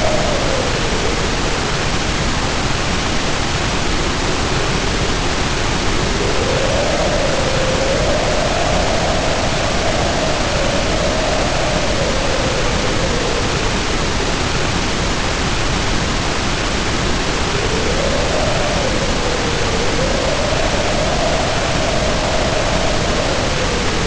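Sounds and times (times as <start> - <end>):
rain hiss: 0.0 - 24.0
wind howling: 0.0 - 24.0.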